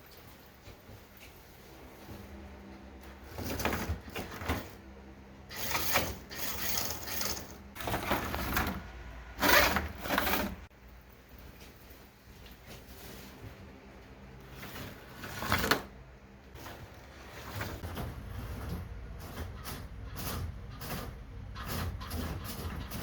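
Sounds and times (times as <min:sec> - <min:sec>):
slot car motors whirring: 0:05.4 - 0:10.7.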